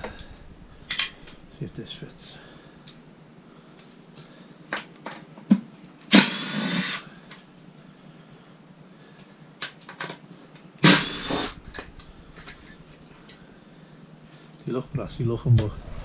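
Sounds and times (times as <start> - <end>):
power drill bursts: 6.1 - 7.0, 10.8 - 11.8.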